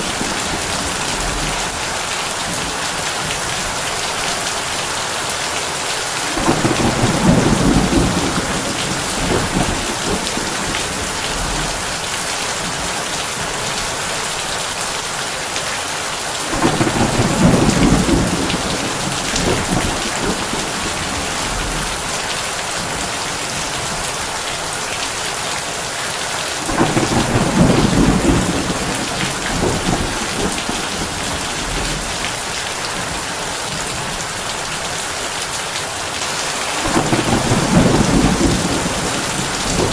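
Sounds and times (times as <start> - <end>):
thunder rumbling: 0.0 - 3.9, 6.2 - 13.8, 16.4 - 24.1, 26.6 - 34.2, 36.2 - 39.9
heavy rain on a tin roof: 0.0 - 39.9.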